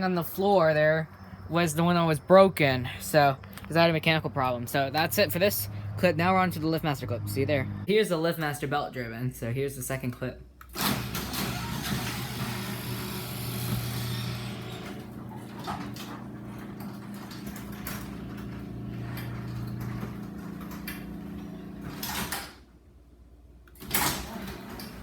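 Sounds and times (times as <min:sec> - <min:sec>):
garage door opener motor hum: 0:10.8 - 0:22.7, 0:23.8 - 0:25.0.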